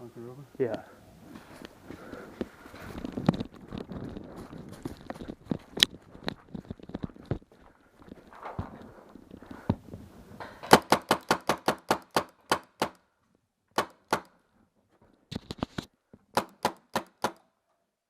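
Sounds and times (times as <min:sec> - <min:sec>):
paintball marker shots: 0:10.7 - 0:13.0, 0:13.8 - 0:14.3, 0:16.3 - 0:17.5.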